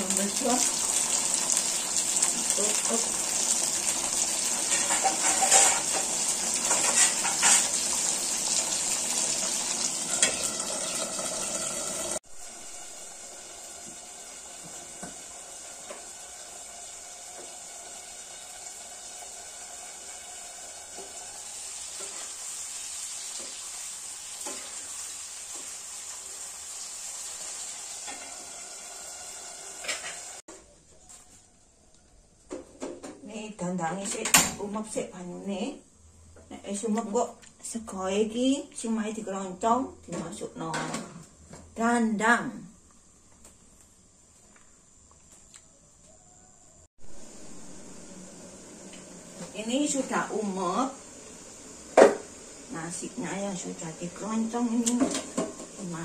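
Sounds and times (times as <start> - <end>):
vegetables frying in hot oil: 0.0 - 30.4, 47.0 - 56.0
spoon stirring in a steel pot: 4.7 - 6.0.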